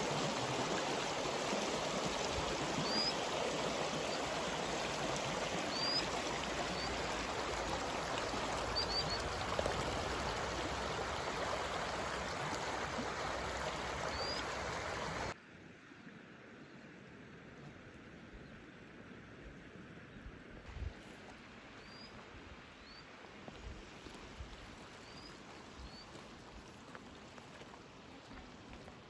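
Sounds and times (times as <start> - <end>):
rushing water: 0.0 - 15.4, 21.2 - 29.0.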